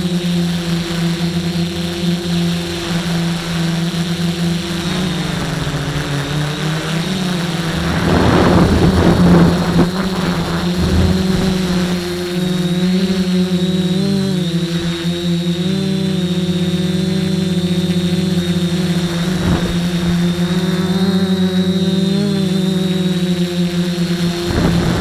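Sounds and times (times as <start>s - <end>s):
drone motors and propellers humming: 0.0s - 25.0s
loud rush of noise: 5.0s - 12.8s, 18.8s - 21.8s.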